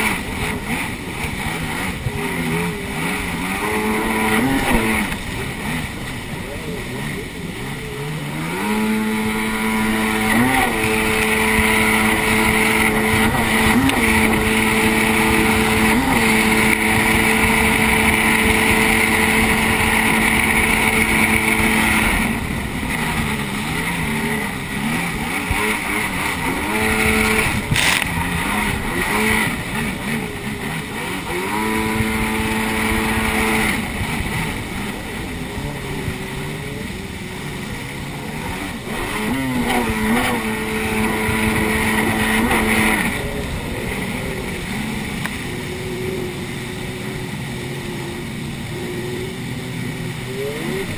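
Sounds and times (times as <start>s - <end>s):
jet ski engine running: 0.0s - 50.9s
rushing water: 0.0s - 50.9s.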